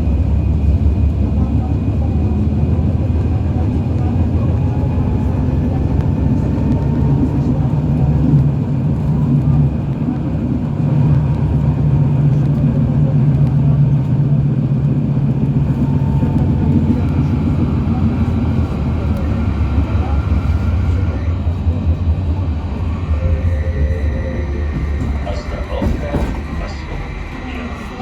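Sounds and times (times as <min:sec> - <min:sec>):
tram wheels rumbling: 0:00.0 - 0:28.0.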